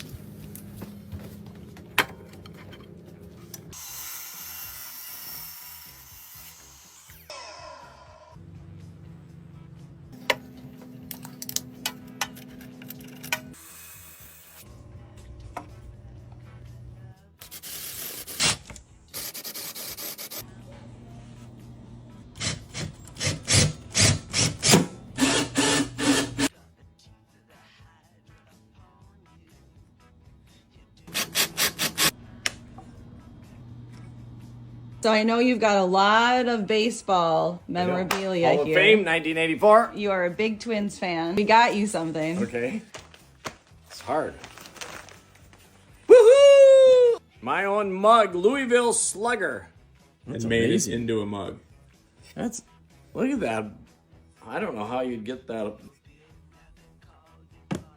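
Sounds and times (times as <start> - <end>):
bit cutting wood with high hiss: 3.8 - 7.4, 31.1 - 32.2.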